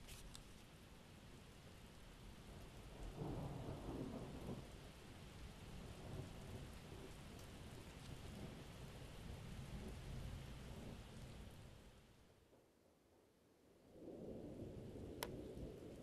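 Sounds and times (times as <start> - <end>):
steady rain: 0.0 - 12.7, 13.7 - 16.0.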